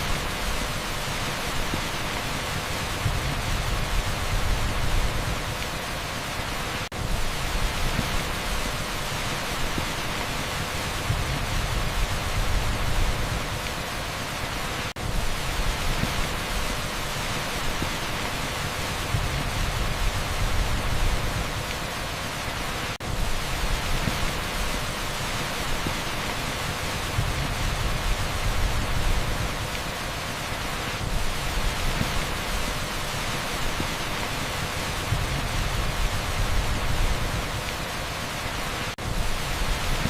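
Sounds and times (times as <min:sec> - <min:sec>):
heavy rain on asphalt: 0:00.0 - 0:40.0.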